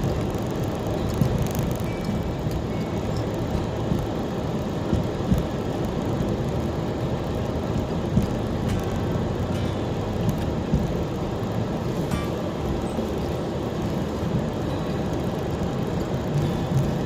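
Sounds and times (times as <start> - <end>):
low rumble of tyres and engine: 0.0 - 17.0
knocks from road bumps: 10.2 - 11.2.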